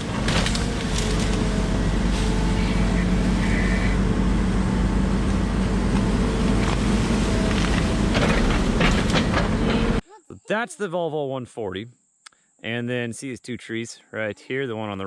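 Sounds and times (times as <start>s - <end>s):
excavator diesel engine running: 0.0s - 10.0s
knocks and cracks: 0.1s - 1.5s.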